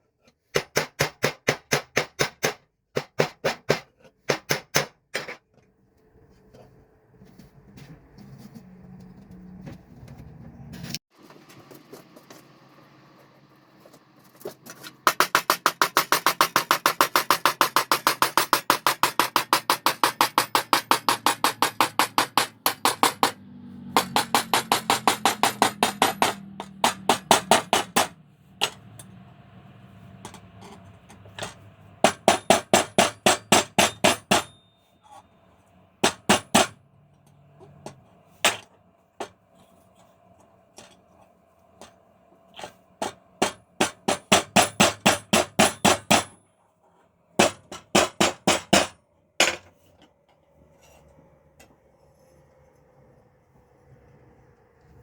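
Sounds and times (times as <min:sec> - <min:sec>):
hammer striking steel on anvil: 0:15.1 - 0:23.4, 0:24.0 - 0:29.2, 0:30.3 - 0:34.7.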